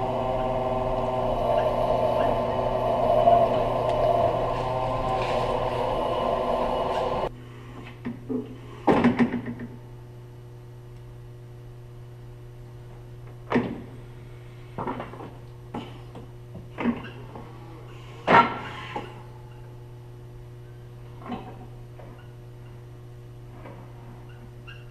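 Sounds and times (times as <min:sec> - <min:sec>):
lift truck running: 0:00.0 - 0:07.3
low steady hum: 0:00.0 - 0:24.9.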